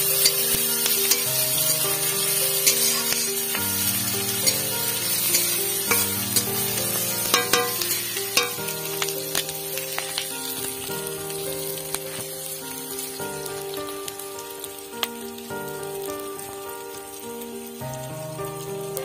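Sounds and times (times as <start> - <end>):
background music: 0.0 - 19.0
vegetables sizzling in oil: 0.0 - 19.0
spatula scraping and tapping pan: 0.2 - 1.7, 4.4 - 6.7, 7.3 - 9.4.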